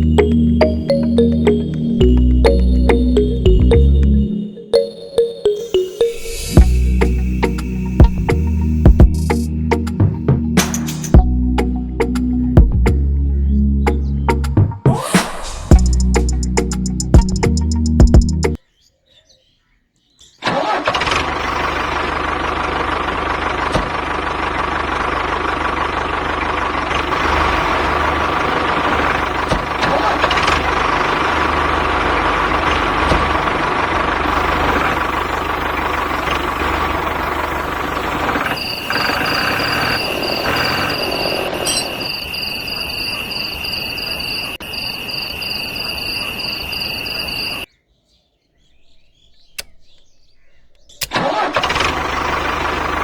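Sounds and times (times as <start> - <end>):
motor humming: 5.8 - 10.4, 21.3 - 43.6, 51.0 - 53.0
high-pitched motor whine: 6.1 - 9.4, 27.0 - 47.6.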